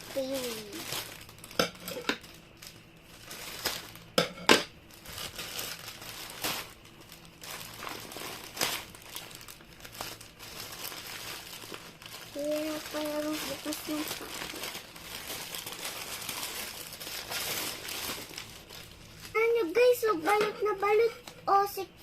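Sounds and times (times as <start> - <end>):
plastic packaging crinkling: 0.0 - 21.6.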